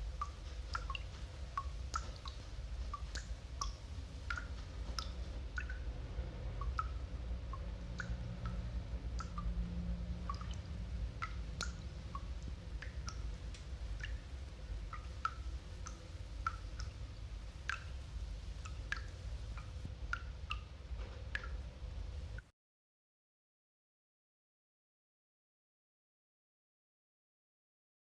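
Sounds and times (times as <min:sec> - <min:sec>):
low record rumble: 0:00.0 - 0:22.5.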